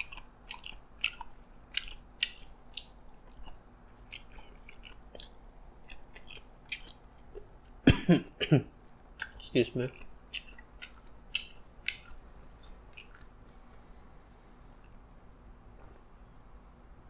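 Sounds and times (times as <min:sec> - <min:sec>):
chewing crunchy salad: 0:00.0 - 0:07.8, 0:08.8 - 0:13.9.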